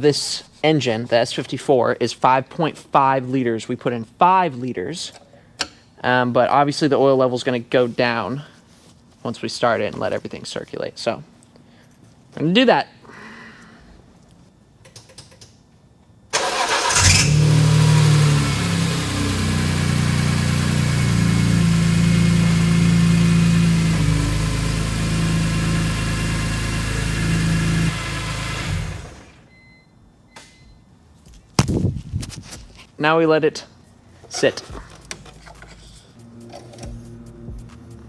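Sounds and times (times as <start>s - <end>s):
starter cranking engine: 16.4s - 21.2s, 23.2s - 29.4s
car engine idling: 16.5s - 29.4s.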